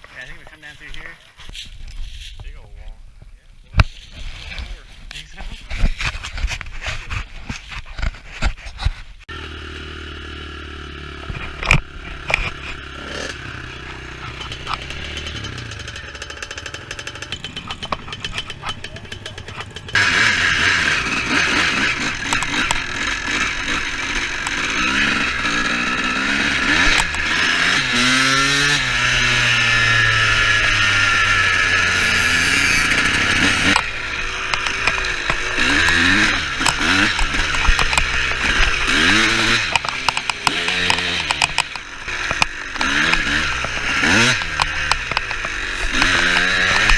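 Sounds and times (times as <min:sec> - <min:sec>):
small two-stroke engine running: 0:09.3 - 0:46.9.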